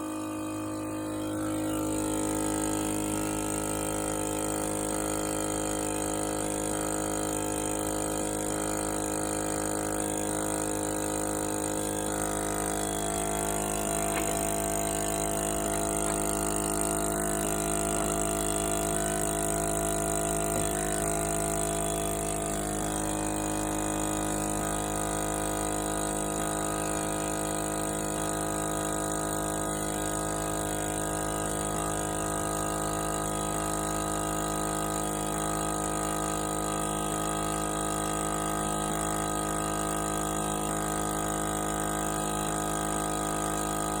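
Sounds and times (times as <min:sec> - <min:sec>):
motor humming: 0:09.2 - 0:27.6.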